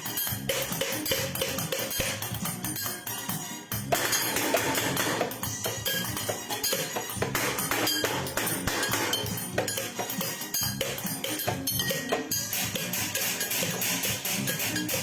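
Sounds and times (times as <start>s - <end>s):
music with rapid percussion: 0.0s - 15.0s.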